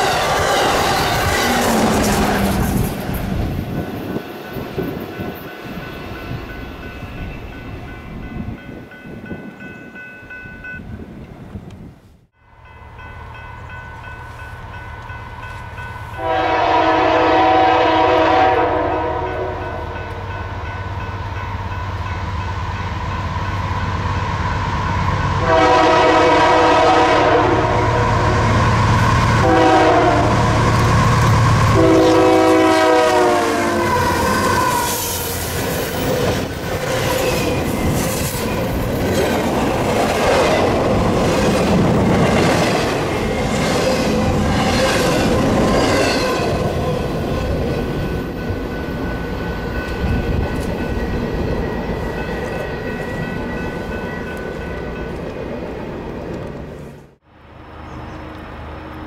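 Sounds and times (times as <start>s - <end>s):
train rumbling by: 0.0s - 59.0s
locomotive air horn blasts: 16.1s - 20.2s, 25.4s - 28.3s, 29.4s - 35.0s.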